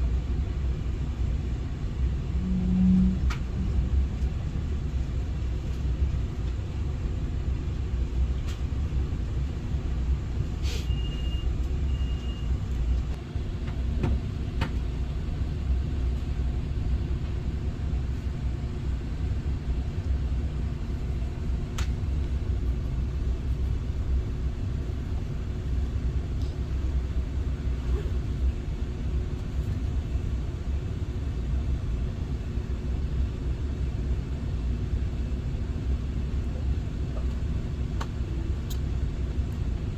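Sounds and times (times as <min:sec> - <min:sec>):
train cabin rumble: 0:00.0 - 0:31.2
brief high tone: 0:02.4 - 0:03.8.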